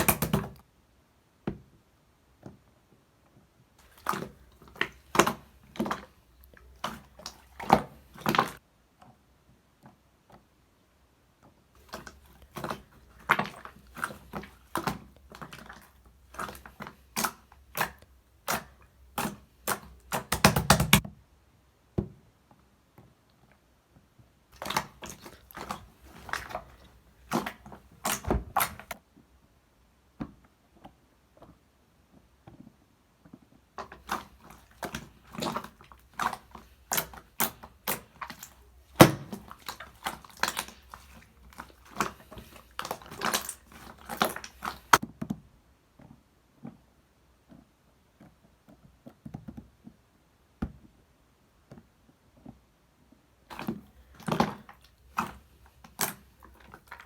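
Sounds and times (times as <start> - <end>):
objects being handled: 33.8 - 45.0.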